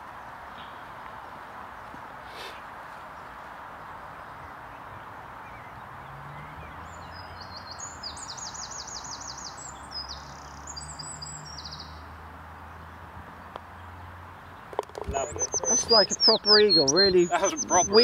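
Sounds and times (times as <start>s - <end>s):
outdoor background hiss: 0.0s - 18.0s
small songbird singing: 4.2s - 13.0s, 13.7s - 18.0s.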